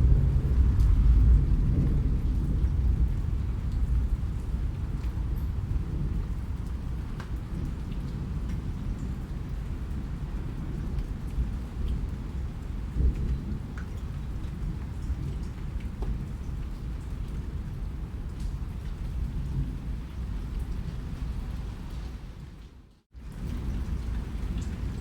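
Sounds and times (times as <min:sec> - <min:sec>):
steady rain: 0:00.0 - 0:25.0
sharp raindrop taps: 0:06.7 - 0:09.6, 0:13.0 - 0:16.9.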